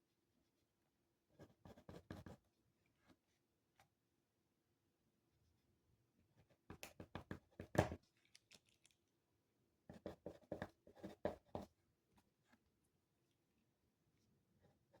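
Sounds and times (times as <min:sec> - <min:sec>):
pen writing on paper: 0:01.4 - 0:02.4, 0:09.9 - 0:11.7.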